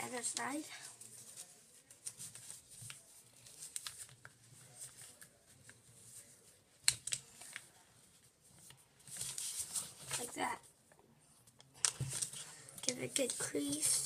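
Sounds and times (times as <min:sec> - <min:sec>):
paper folding and crinkling: 0:00.0 - 0:10.7, 0:11.7 - 0:14.0.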